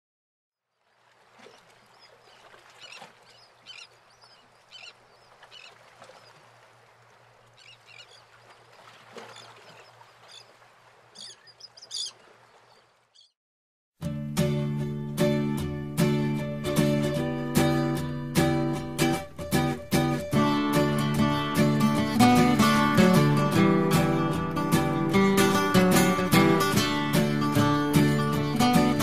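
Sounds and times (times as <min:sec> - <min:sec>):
birds calling: 0:00.9 - 0:13.4.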